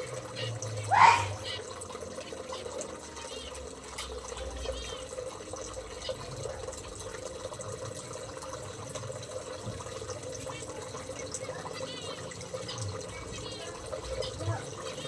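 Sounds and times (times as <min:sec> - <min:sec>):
small birds chirping: 0:00.0 - 0:05.2, 0:10.5 - 0:15.0
water pouring into container: 0:00.0 - 0:15.0.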